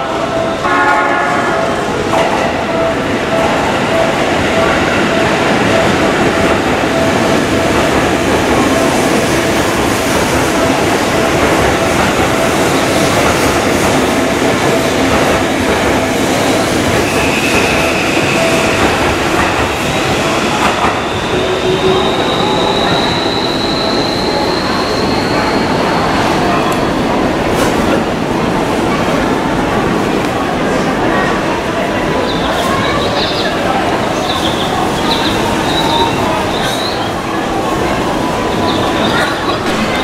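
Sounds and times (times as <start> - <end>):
high whine: 39.5 - 40.0.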